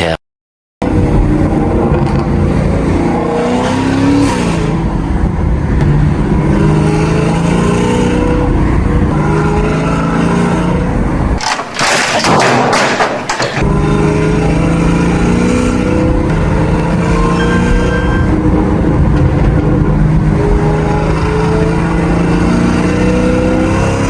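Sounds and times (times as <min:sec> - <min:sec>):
car engine revving: 0:00.8 - 0:11.4, 0:13.6 - 0:24.0
rushing noise: 0:13.6 - 0:22.6.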